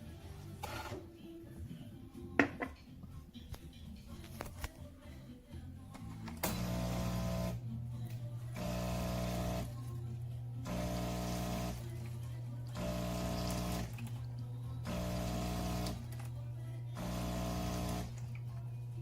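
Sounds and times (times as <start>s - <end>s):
espresso machine hissing surge: 6.5s - 7.6s, 8.6s - 9.8s, 10.6s - 11.9s, 12.8s - 14.0s, 14.8s - 16.1s, 17.0s - 18.2s
espresso machine pump hum: 6.5s - 19.0s.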